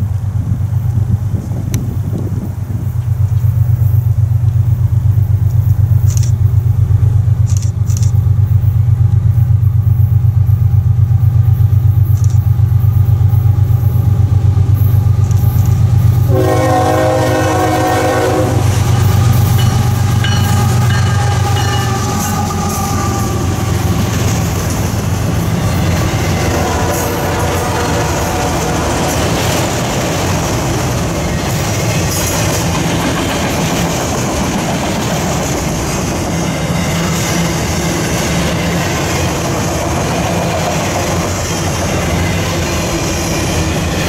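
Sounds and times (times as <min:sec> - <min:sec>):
diesel locomotive engine throbbing: 0:00.0 - 0:44.0
freight cars rumbling and clattering: 0:00.0 - 0:44.0
train horn blast: 0:16.2 - 0:24.3, 0:25.4 - 0:29.7.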